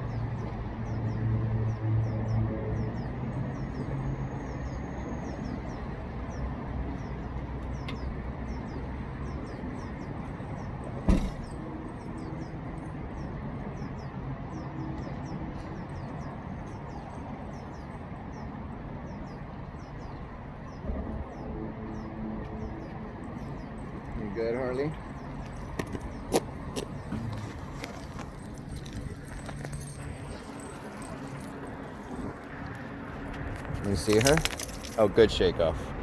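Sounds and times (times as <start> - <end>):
sharp knock: 11.0 - 11.4.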